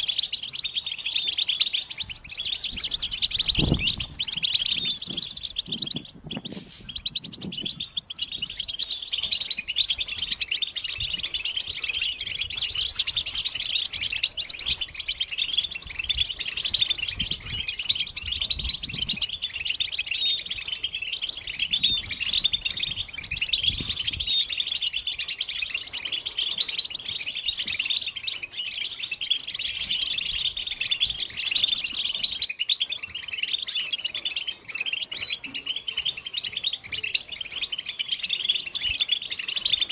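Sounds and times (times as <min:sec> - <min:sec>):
finches twittering: 0:00.0 - 0:39.9.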